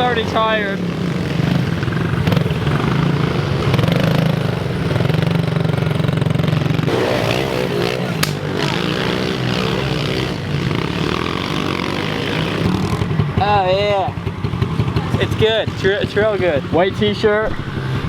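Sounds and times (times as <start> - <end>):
motorbike engine revving: 0.0 - 18.0
pit bike engines running: 0.0 - 18.0
sharp click: 8.2 - 8.4.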